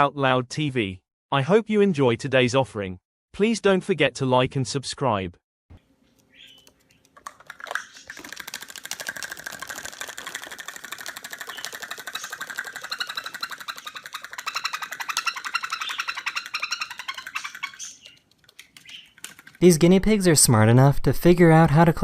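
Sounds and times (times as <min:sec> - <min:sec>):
high-pitched chattering call: 0:09.8 - 0:18.2.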